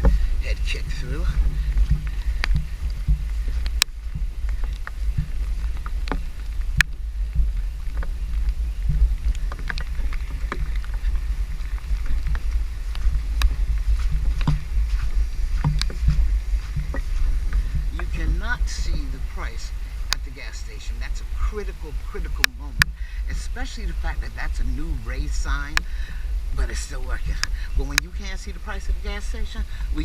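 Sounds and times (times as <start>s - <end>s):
wind rumble on microphone: 0.0s - 30.0s
sharp ticks: 16.8s - 26.0s.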